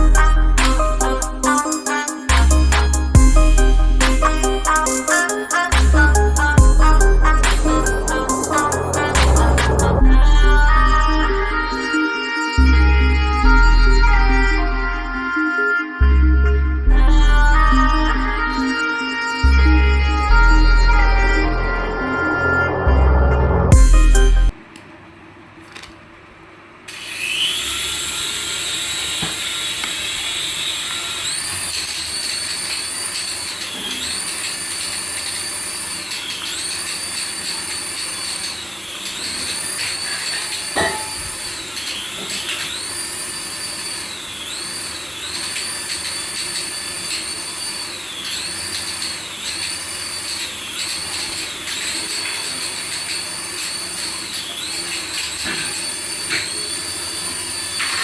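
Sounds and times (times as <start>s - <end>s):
electronic toy engine sound: 0.0s - 24.6s, 26.9s - 58.0s
high warbling tone: 0.0s - 24.6s, 38.9s - 42.7s.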